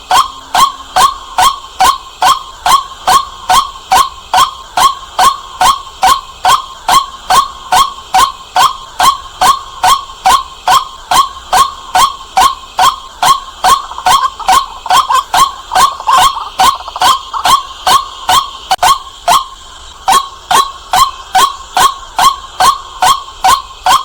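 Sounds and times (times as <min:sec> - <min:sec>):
waterhen calling kwak notes: 0:00.0 - 0:24.0.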